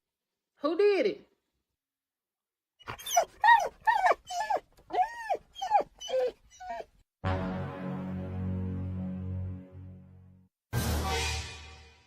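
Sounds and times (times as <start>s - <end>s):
dog whining and yowling: 2.8s - 7.0s
music: 7.2s - 12.0s.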